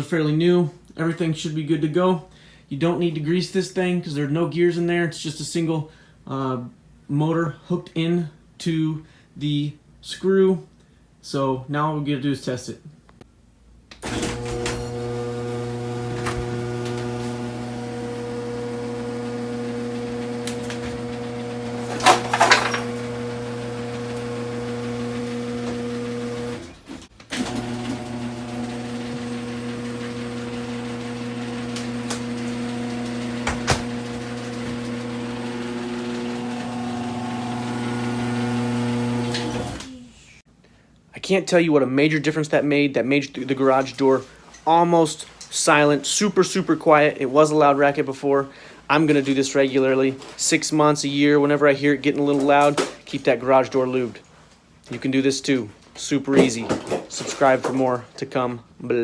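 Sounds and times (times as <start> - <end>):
garage door opener motor humming: 14.0 - 40.1.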